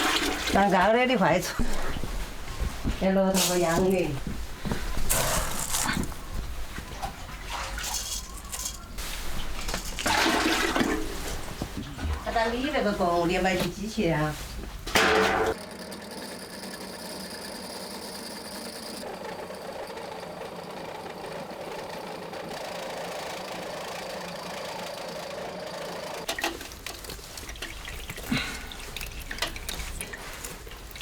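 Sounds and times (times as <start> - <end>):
small machine motor running: 15.6 - 26.3.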